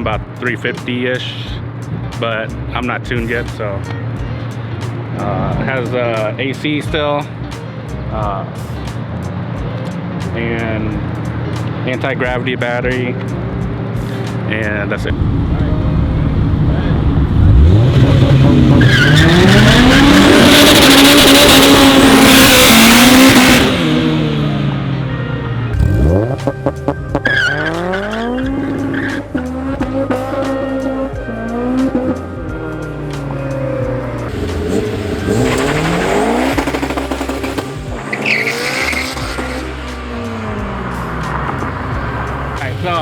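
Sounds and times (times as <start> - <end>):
background music: 0.0 - 43.0
car engine revving hard: 15.1 - 25.1, 25.7 - 32.2, 33.2 - 43.0
tyre squeal: 18.7 - 20.9, 27.2 - 29.5, 33.8 - 39.7.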